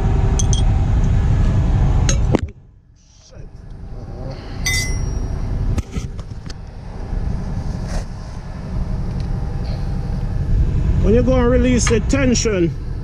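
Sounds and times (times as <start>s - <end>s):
steady low rumble: 0.0s - 13.0s
metal hand tools clinking: 4.7s - 5.2s.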